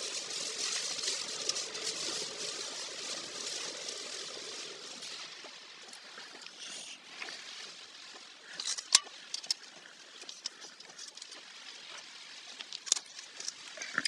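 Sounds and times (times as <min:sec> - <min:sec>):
heavy rain: 0:00.0 - 0:06.4
car tyres hissing on wet road: 0:00.0 - 0:08.6.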